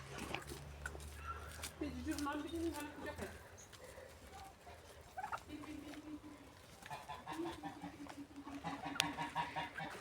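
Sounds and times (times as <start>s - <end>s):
fowl clucking: 6.8s - 10.0s
fowl drawn-out low calls: 6.9s - 10.0s.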